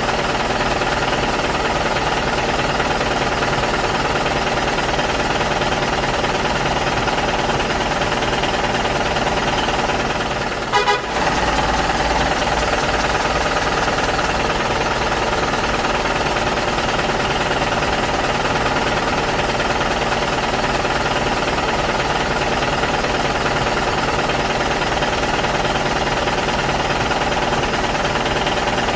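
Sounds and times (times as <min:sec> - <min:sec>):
engine running: 0:00.0 - 0:28.9
double horn toot: 0:10.7 - 0:11.6.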